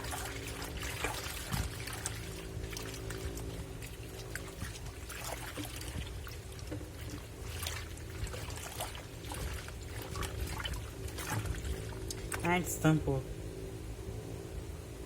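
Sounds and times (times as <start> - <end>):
water sloshing in washing machine: 0.0 - 12.9
low motor hum: 0.0 - 15.0.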